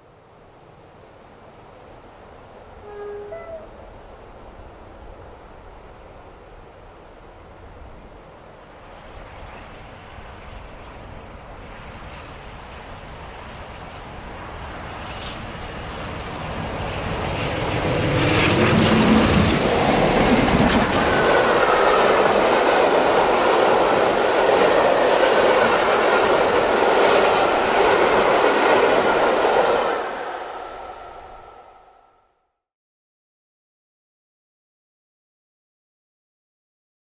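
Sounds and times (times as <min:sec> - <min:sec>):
diesel locomotives passing: 0:00.2 - 0:32.3
wheels clicking over rail joints: 0:19.8 - 0:21.5.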